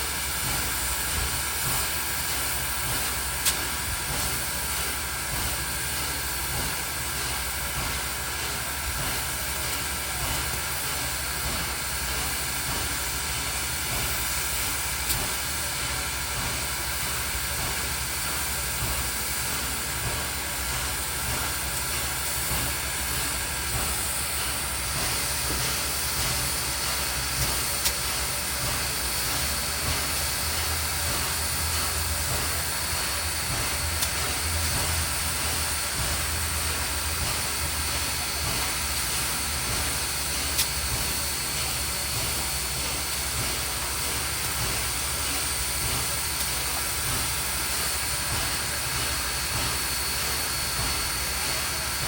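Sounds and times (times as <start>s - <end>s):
train locomotive rumbling: 0.0s - 52.0s.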